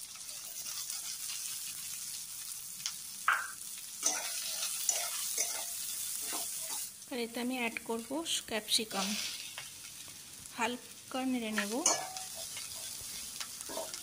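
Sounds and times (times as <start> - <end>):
onion sizzling in hot oil: 0.0 - 14.0
metal spatula scraping a pan: 0.2 - 1.8, 4.0 - 6.9, 11.6 - 14.0.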